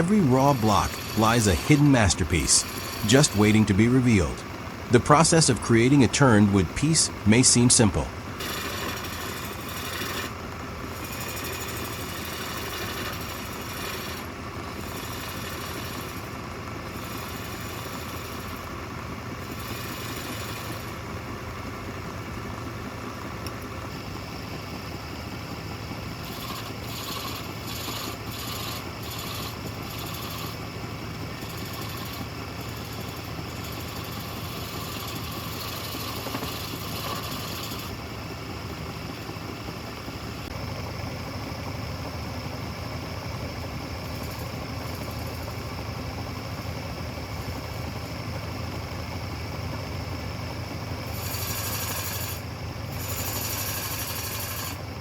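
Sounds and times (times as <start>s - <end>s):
lathe motor humming: 0.0s - 1.7s, 2.6s - 3.4s, 8.2s - 22.6s, 25.4s - 39.5s, 44.1s - 45.5s, 51.1s - 52.4s, 53.0s - 54.8s
turning tool scraping wood: 0.0s - 3.4s, 8.4s - 16.3s, 16.9s - 18.6s, 19.4s - 21.0s, 26.2s - 30.6s, 31.3s - 38.0s, 51.1s - 54.8s.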